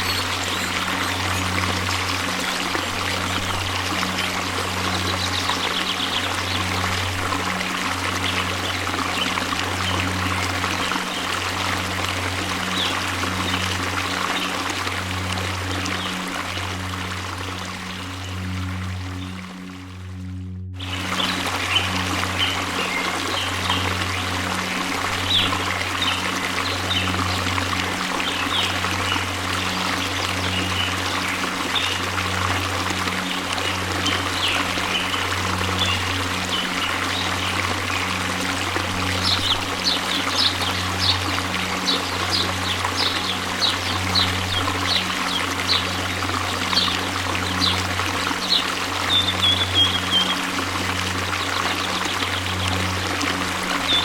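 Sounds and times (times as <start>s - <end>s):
birds chirping: 0.0s - 2.6s, 39.0s - 50.6s
waterfall rushing: 0.0s - 19.8s, 20.8s - 54.0s.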